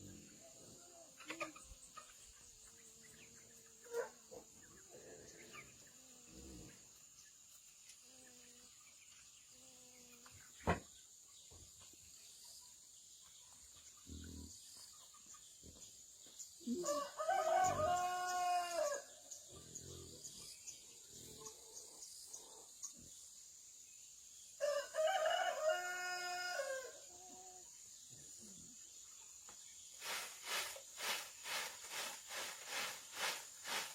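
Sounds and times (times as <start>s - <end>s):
chicken calls: 0.0s - 6.3s, 30.0s - 33.9s
rooster crowing: 16.8s - 19.1s, 24.6s - 27.0s.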